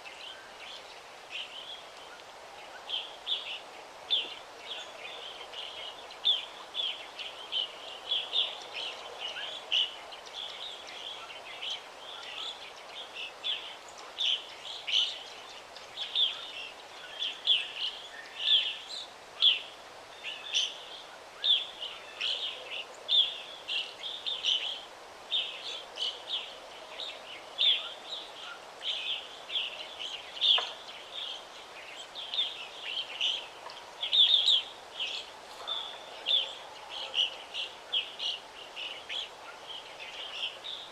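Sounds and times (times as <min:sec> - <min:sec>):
faint steady hiss: 0:00.0 - 0:40.9.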